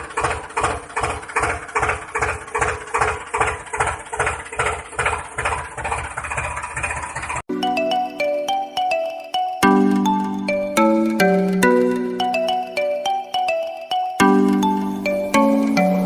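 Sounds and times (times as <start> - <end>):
tractor engine chugging: 0.0 - 16.0
chiming music notes: 7.5 - 16.0.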